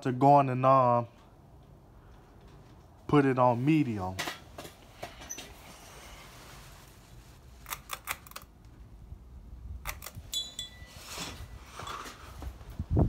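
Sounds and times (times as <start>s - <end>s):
pull-chain switch clicks and rattle: 9.8s - 10.8s.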